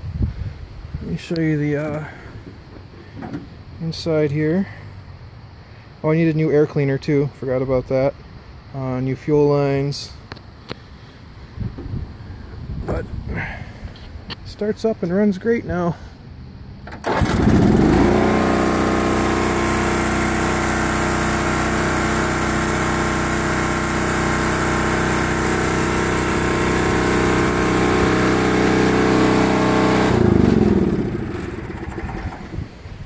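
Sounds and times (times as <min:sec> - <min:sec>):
riding mower engine starting and running: 0:01.0 - 0:04.9, 0:16.8 - 0:33.0.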